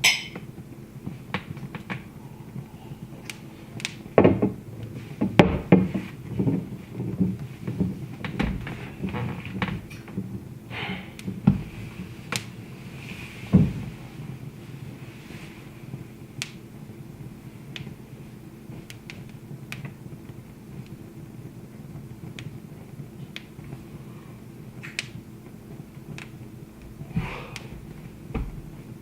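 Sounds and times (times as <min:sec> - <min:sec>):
low hum: 0:00.0 - 0:18.4
wood fire crackling: 0:00.0 - 0:29.0
heavy thump: 0:13.5 - 0:14.0, 0:27.1 - 0:28.7.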